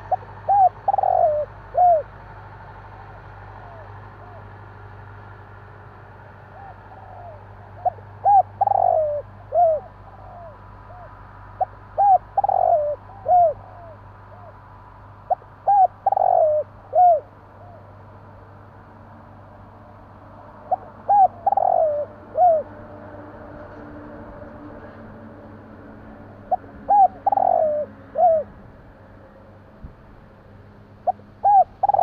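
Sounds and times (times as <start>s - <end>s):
dove cooing: 0.0s - 2.2s, 3.5s - 4.5s, 6.5s - 14.6s, 15.3s - 18.0s, 20.6s - 22.8s, 26.1s - 28.6s, 31.0s - 32.0s.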